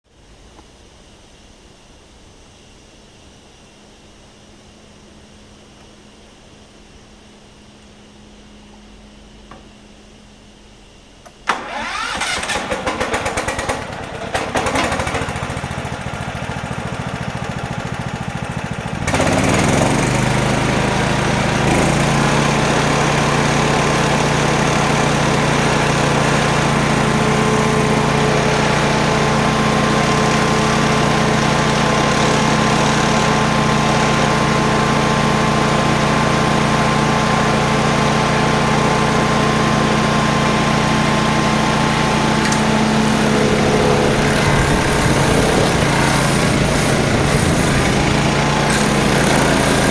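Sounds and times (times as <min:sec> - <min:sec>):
petrol engine running: 0:11.2 - 0:49.9
starter motor cranking: 0:11.3 - 0:25.2, 0:42.1 - 0:49.9.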